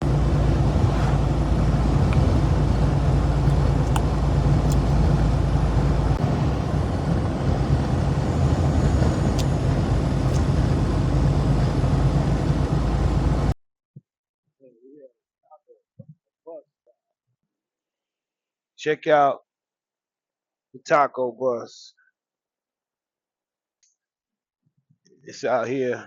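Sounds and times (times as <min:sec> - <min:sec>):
truck engine rumbling: 0:00.0 - 0:13.6.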